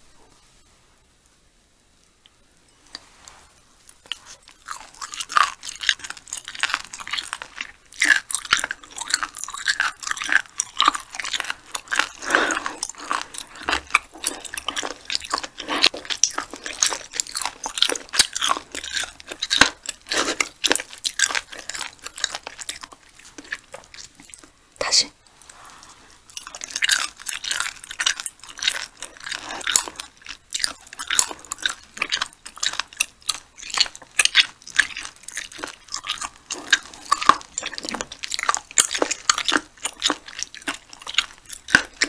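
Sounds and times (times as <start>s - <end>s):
chewing clicks and smacks: 4.0s - 24.5s, 26.3s - 42.0s.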